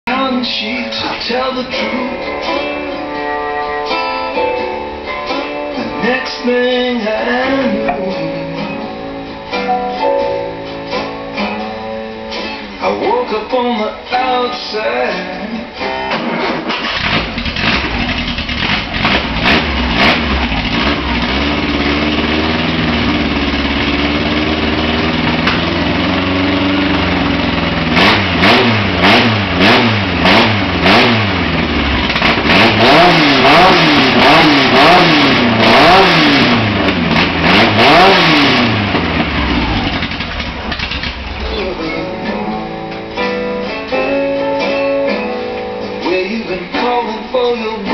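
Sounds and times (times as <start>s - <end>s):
car engine revving: 16.2s - 43.1s.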